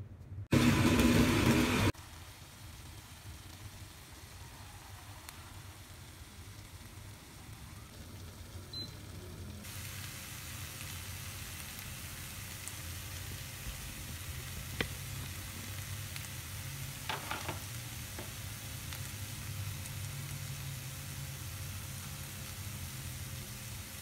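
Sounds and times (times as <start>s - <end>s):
omelette sizzling in pan: 9.6s - 24.0s.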